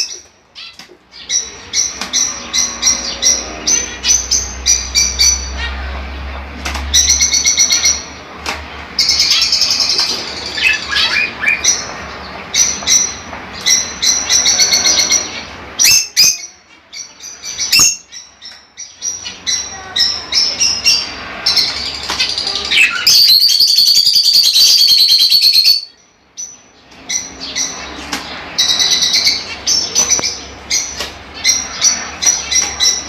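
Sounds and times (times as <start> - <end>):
budgerigars chirping and chattering: 0.0 - 8.3, 9.0 - 33.0.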